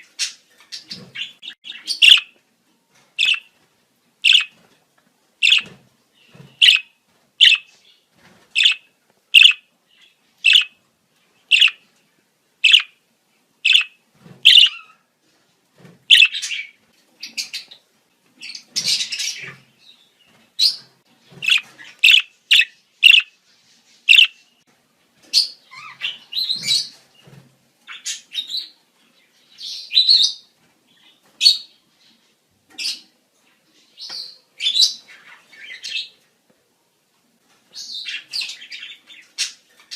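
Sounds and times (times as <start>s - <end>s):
budgerigars chirping and warbling: 0.0s - 2.4s, 3.2s - 3.5s, 4.2s - 4.6s, 5.4s - 7.8s, 8.6s - 10.8s, 11.5s - 11.8s, 12.6s - 13.0s, 13.6s - 15.0s, 16.1s - 17.8s, 18.4s - 19.8s, 20.6s - 23.4s, 24.0s - 24.4s, 25.4s - 27.0s.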